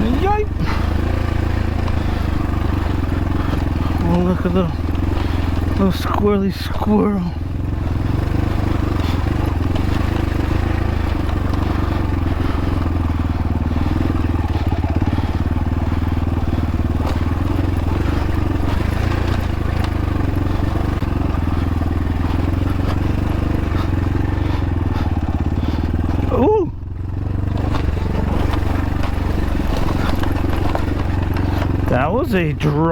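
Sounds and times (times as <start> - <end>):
dirt bike engine at low revs: 0.0 - 32.9
clicks and knocks from bike: 8.5 - 26.2, 27.5 - 31.9.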